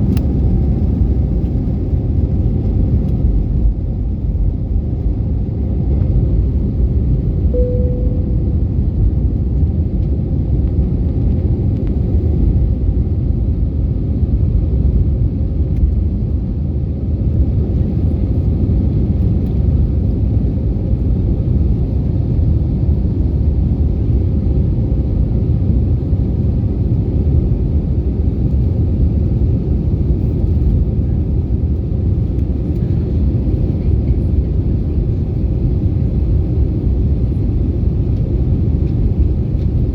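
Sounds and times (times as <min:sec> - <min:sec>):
airliner low rumble: 0:00.0 - 0:39.9
brief single tone: 0:07.6 - 0:09.0.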